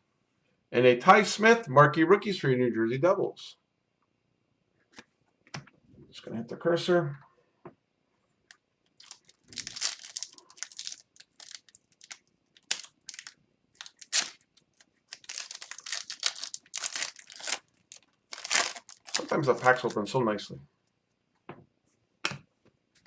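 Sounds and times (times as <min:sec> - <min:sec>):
plastic wrapper crinkling: 0:08.9 - 0:20.1.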